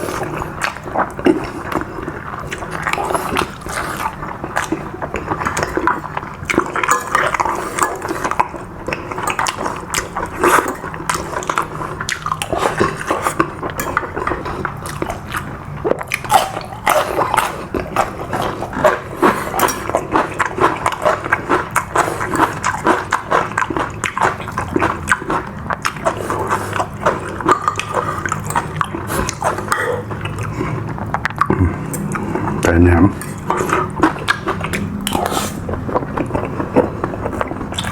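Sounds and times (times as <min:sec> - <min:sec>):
mouth clicks and smacks: 0:00.0 - 0:37.9
person chewing food: 0:00.0 - 0:37.9.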